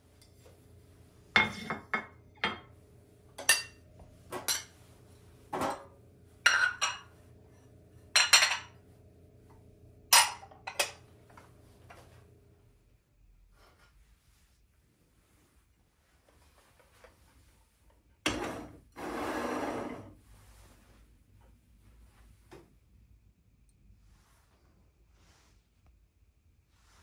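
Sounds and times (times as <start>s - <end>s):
low steady hum: 0.0s - 19.0s
dishes and cutlery clinking: 1.3s - 2.8s, 3.4s - 4.8s, 5.5s - 7.2s, 8.1s - 8.8s, 10.1s - 11.0s.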